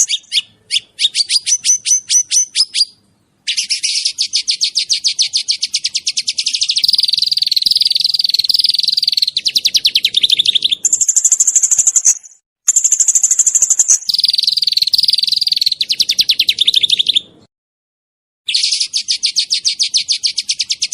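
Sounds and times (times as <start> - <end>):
songbird trilling: 0.0 - 17.4, 18.5 - 20.9.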